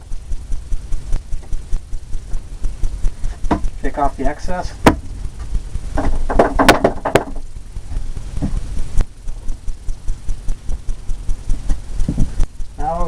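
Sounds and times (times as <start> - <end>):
paintbrush knocking and rattling: 4.8 - 8.7.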